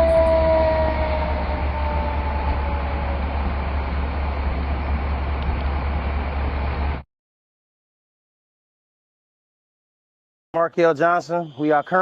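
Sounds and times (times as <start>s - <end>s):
falling siren tone: 0.0s - 6.9s.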